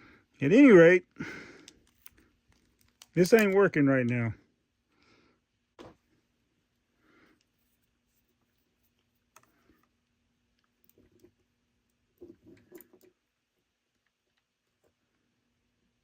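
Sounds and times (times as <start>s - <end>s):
small plastic and metal parts clicking: 1.6s - 4.2s.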